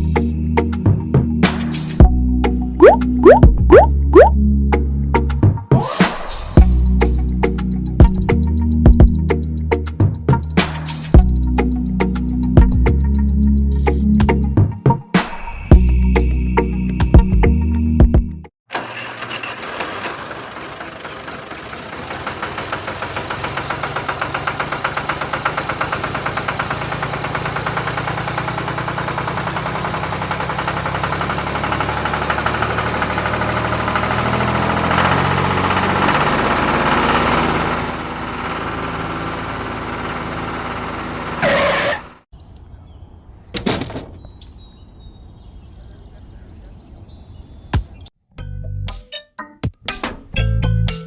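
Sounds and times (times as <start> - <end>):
small engine pulsing: 18.7 - 42.2.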